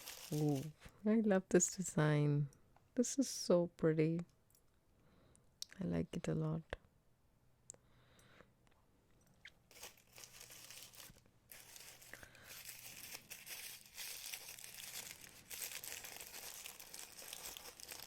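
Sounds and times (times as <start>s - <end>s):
packaging crinkling and rustling: 0.0s - 0.8s, 9.7s - 18.0s.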